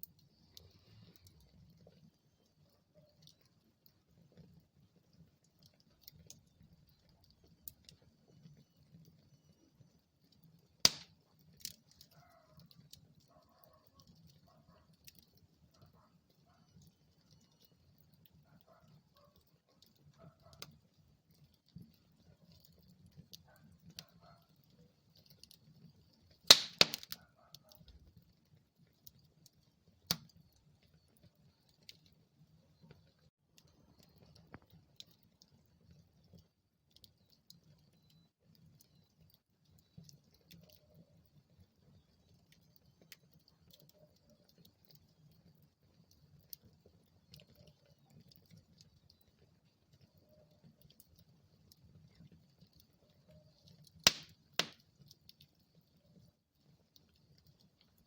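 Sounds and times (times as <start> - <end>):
wood fire crackling: 0.0 - 58.0
loud sharp pop from fire: 10.9 - 11.1, 26.5 - 27.2, 54.0 - 54.8.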